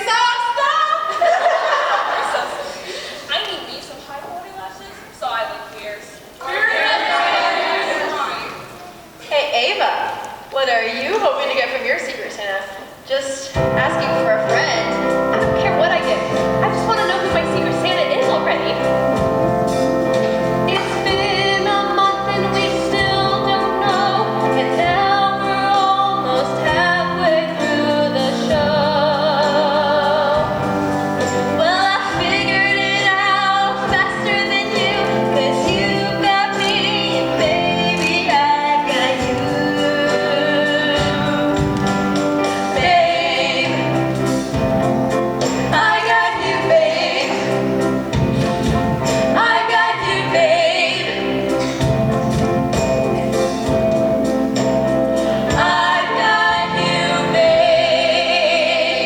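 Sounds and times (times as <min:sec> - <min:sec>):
musical accompaniment: 0:13.5 - 0:59.0
person singing with vibrato: 0:20.7 - 0:44.7.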